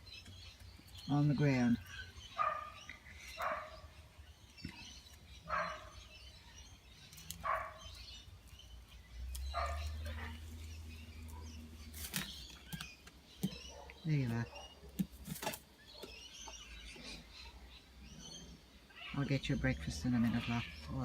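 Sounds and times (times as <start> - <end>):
low steady hum: 0.0 - 15.4
dog barking: 2.4 - 2.8, 3.4 - 3.8, 5.5 - 6.0, 7.4 - 7.9, 9.5 - 10.3.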